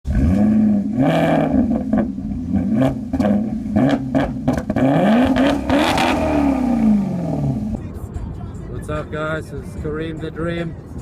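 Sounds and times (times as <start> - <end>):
sports car engine revving: 0.1 - 7.9.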